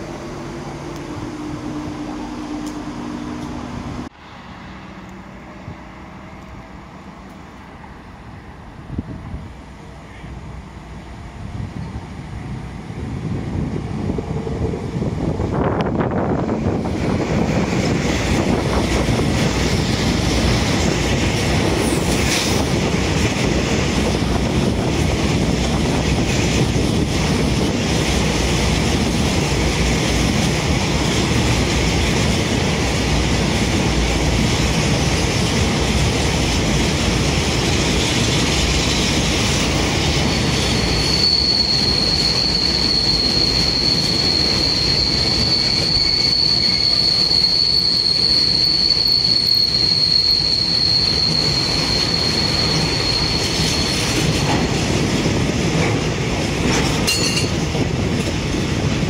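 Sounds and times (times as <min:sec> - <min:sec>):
freight train wheels rumbling: 0:00.0 - 0:59.0
high wheel squeal: 0:39.7 - 0:54.4.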